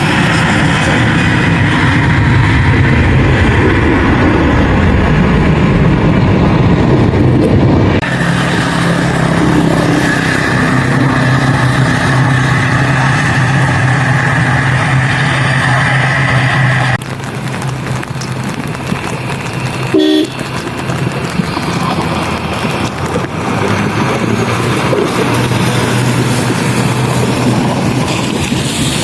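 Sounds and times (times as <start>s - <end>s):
jet engines droning: 0.0s - 29.0s
short horn toot: 19.9s - 20.4s.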